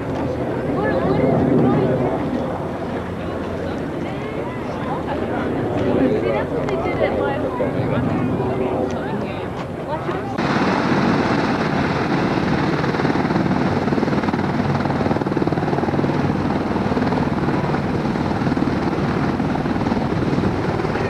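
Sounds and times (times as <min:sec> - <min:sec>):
helicopter rotor chop: 0:10.2 - 0:21.0.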